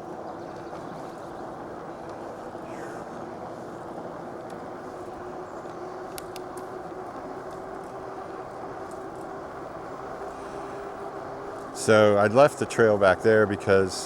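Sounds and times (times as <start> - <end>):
steady low hum: 0.0 - 14.0
light clicks: 5.6 - 6.7.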